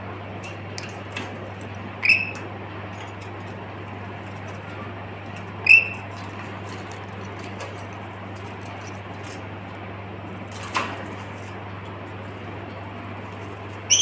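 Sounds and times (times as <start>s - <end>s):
steady low hum: 0.0s - 14.0s
parrot chirping: 2.0s - 2.4s, 5.6s - 6.0s.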